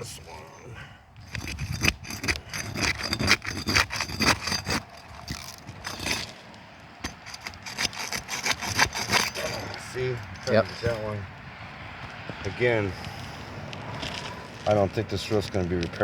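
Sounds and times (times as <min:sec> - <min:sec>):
roof shingle tearing loose: 0:01.2 - 0:10.9.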